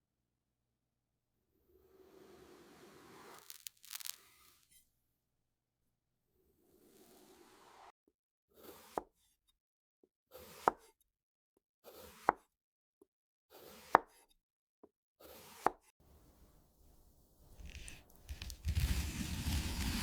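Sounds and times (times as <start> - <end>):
scraping strokes ending in tap: 17.5 - 20.0.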